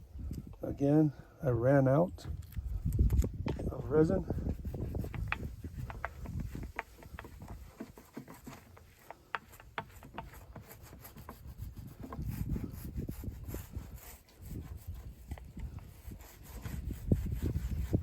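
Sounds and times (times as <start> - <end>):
rubbing on wooden drum shell: 3.5 - 18.0.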